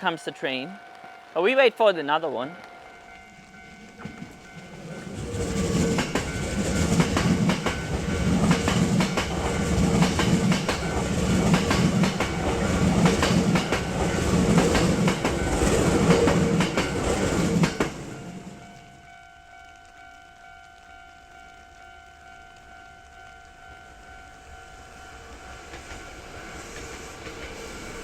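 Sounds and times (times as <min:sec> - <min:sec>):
train wheels clattering on rails: 0:02.4 - 0:18.8, 0:25.0 - 0:28.0.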